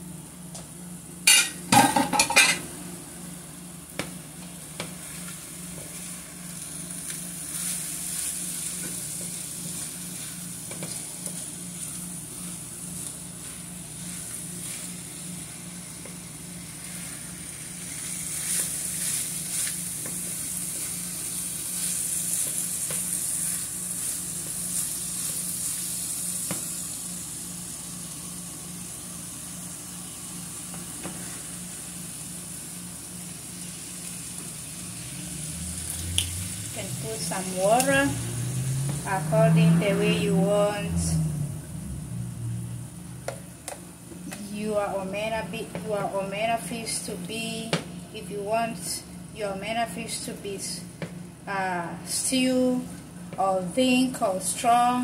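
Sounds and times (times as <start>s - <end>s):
fish sizzling in a frying pan: 4.9s - 39.4s
spatula stirring and scraping: 7.2s - 25.8s.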